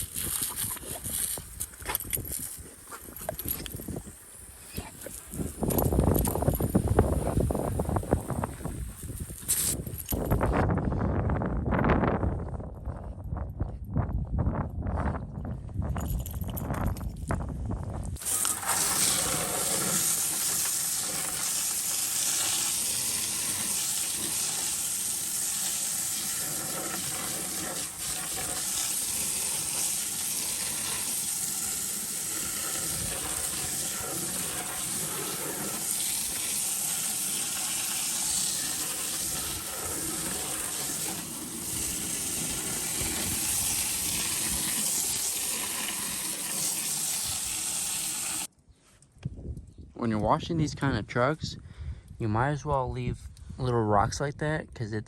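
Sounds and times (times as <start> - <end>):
water spraying onto truck: 18.2 - 48.5.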